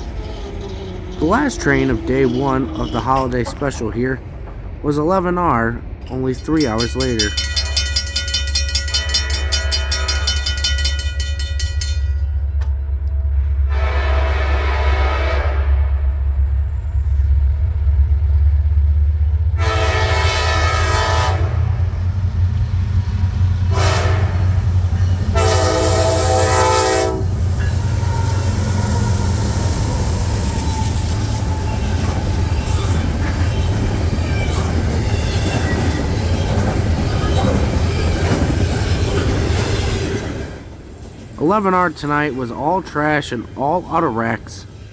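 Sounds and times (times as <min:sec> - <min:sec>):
train wheel clatter: 0:00.0 - 0:13.2, 0:23.7 - 0:43.6
diesel locomotive engine rumble: 0:00.0 - 0:44.9
train air horn blasts: 0:09.0 - 0:10.7, 0:13.5 - 0:16.3, 0:19.6 - 0:21.8, 0:23.7 - 0:29.4.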